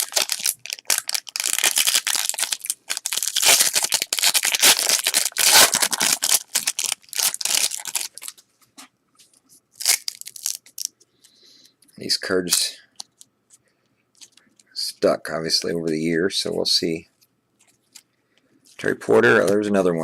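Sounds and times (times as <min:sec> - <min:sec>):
wrapper being torn and crinkled: 0:00.0 - 0:08.4, 0:09.8 - 0:10.9.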